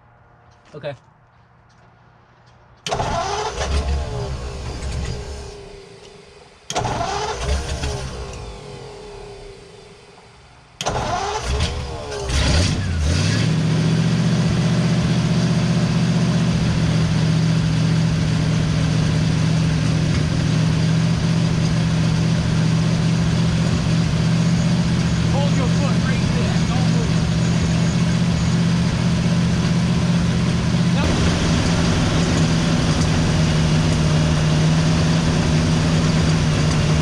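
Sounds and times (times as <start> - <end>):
car engine cranking on starter: 2.8 - 13.7, 29.7 - 37.0
engine running at fast idle: 2.9 - 37.0.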